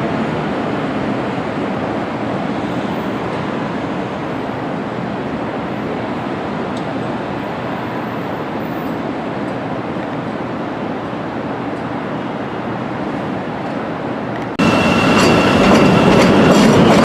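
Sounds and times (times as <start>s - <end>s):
train wheels rumbling on rails: 12.7s - 17.0s.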